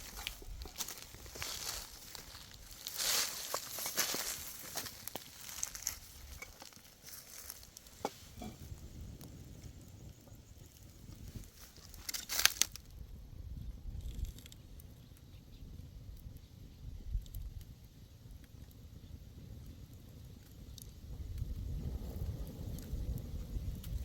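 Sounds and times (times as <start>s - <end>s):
dry wheat stalks crunching and rustling: 0.0s - 8.8s, 10.6s - 12.9s.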